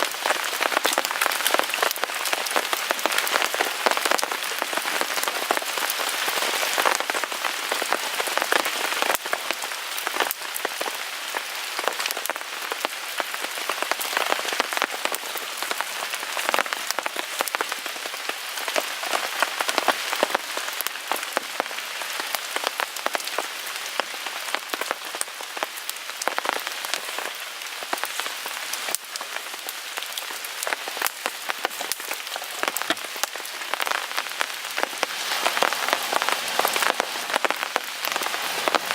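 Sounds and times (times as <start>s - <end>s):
rain pattering on a tarp: 0.0s - 38.9s
wood fire crackling: 22.3s - 38.9s.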